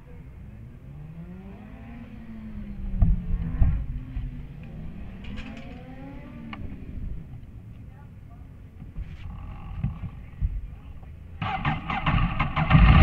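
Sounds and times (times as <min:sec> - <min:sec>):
motorcycle engine revving: 0:00.0 - 0:07.4, 0:11.4 - 0:13.0.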